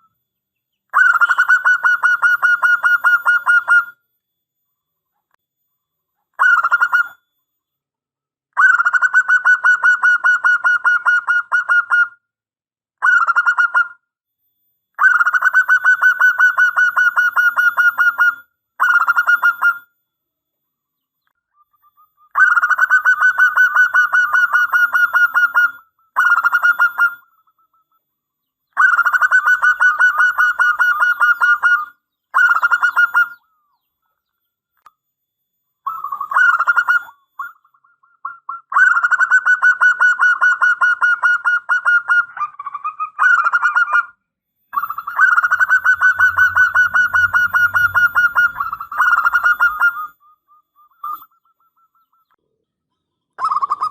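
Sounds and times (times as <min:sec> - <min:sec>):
dove cooing: 0:21.9 - 0:27.9, 0:28.8 - 0:33.6, 0:35.9 - 0:37.6, 0:44.8 - 0:50.2.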